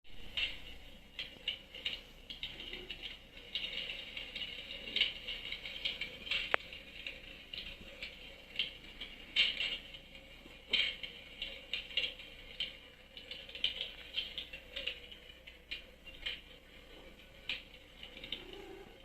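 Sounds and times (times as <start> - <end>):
fire crackling in fireplace: 0.1 - 19.0.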